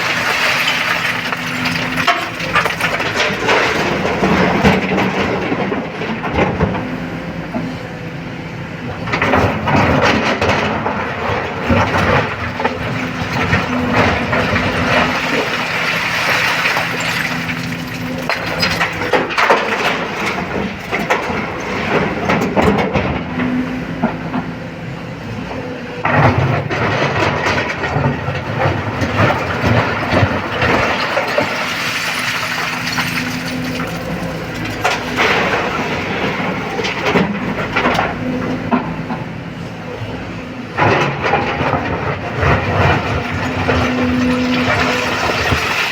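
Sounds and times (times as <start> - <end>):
rocks clattering and grinding: 0.0 - 5.8, 9.2 - 22.6, 26.1 - 38.2, 40.8 - 45.9
excavator diesel engine: 0.0 - 45.9.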